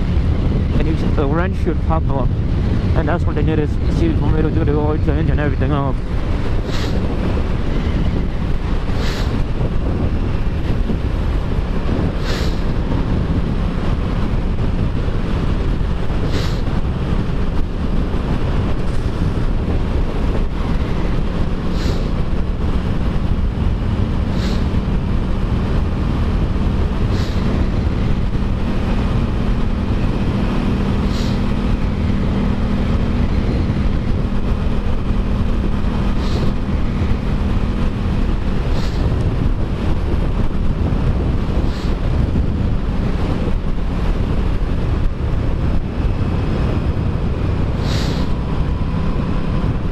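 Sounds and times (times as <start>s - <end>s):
motorcycle engine hum: 0.0s - 49.9s
wind rush on microphone: 0.0s - 49.9s.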